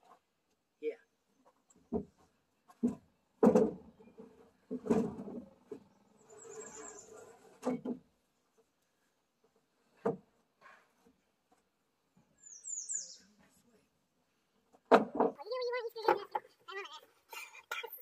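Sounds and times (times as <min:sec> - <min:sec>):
knocks on wooden deck boards: 0:01.9 - 0:03.9
noisy scrape: 0:06.1 - 0:07.7.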